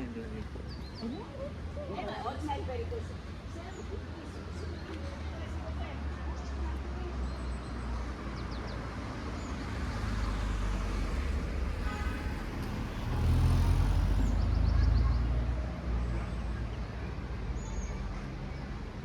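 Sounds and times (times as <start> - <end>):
vehicle engine rumble passing: 8.1 - 19.0.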